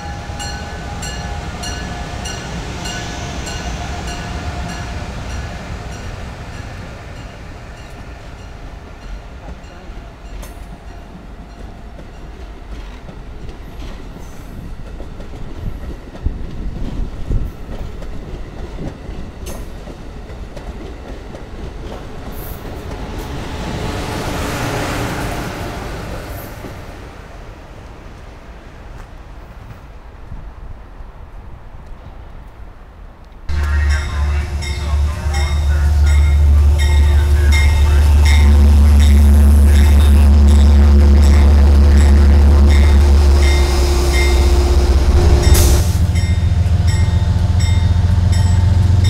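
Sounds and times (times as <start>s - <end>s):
train wheels rumbling on rail: 0.0s - 30.6s, 33.3s - 49.0s
clicks of coaches over track: 9.4s - 23.4s, 33.2s - 43.0s.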